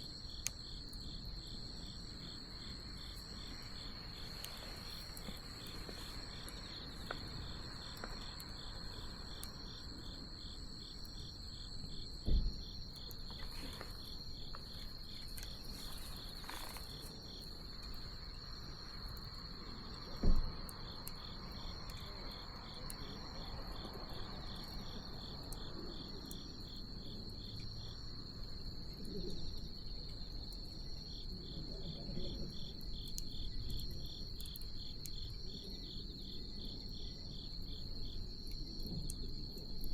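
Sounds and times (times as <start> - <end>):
bonfire crackling: 0.0 - 31.0
crickets chirring: 0.0 - 39.9.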